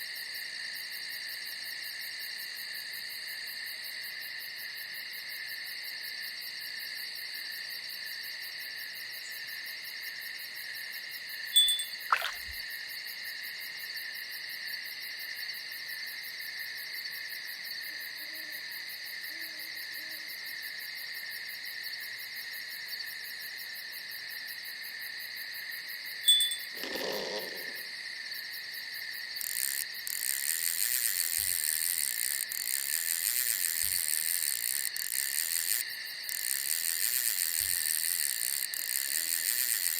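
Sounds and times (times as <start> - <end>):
insects trilling: 11.6 - 12.6, 26.3 - 39.9.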